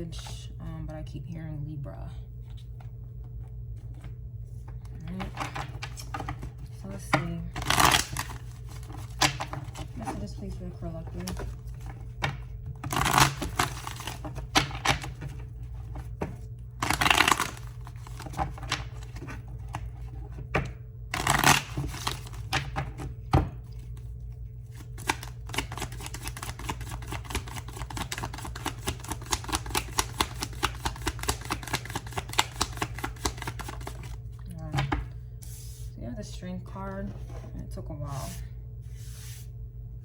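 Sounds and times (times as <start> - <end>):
low hum: 0.0 - 25.8
cards sliding and tapping: 24.8 - 34.2.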